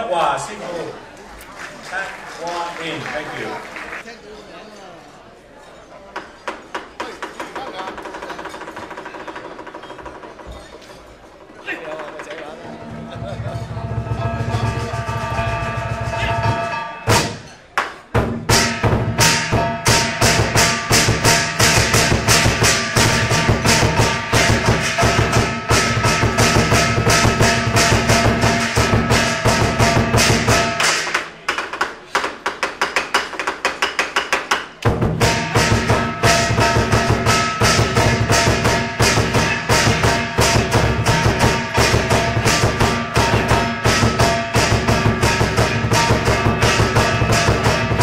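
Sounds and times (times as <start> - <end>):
rapid drum beats: 11.9 - 48.0
ringing metal strikes: 12.6 - 31.2, 35.1 - 48.0.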